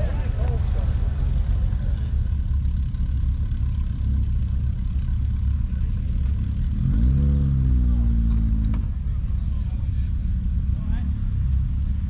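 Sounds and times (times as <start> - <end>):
vehicle engine revving: 0.0 - 9.0.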